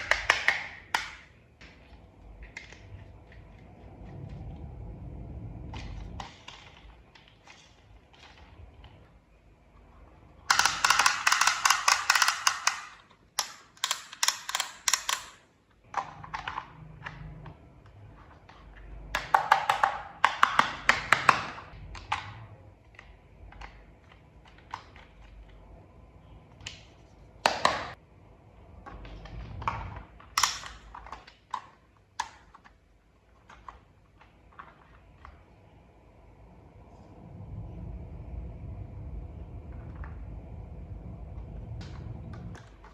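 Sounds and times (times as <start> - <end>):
plastic toy parts clicking: 0.0 - 1.8, 10.4 - 17.6, 18.2 - 25.6, 28.8 - 35.4.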